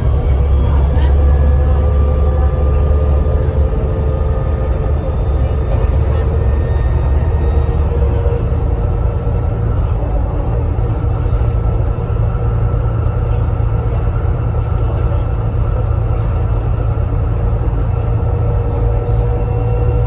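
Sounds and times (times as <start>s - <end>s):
high turbocharger whistle: 0.0s - 9.9s
bus engine and road rumble: 0.0s - 20.0s.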